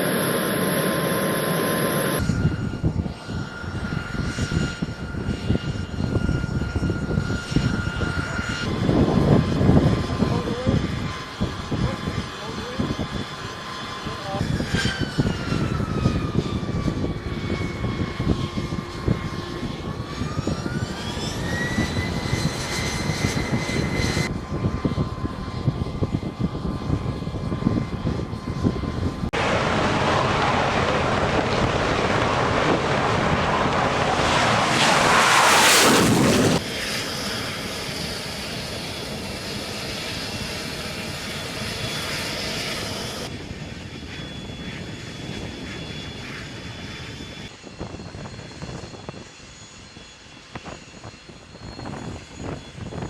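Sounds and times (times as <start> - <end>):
jet engine roar: 0.0 - 53.0
turbine whine: 0.0 - 53.0.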